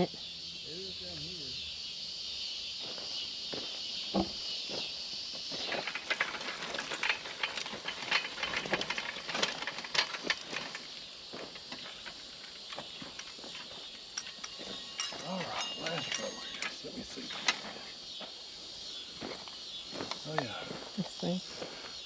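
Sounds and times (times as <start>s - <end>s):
insects hissing: 0.0s - 22.0s
garden seeder clicking and rattling: 5.4s - 17.9s.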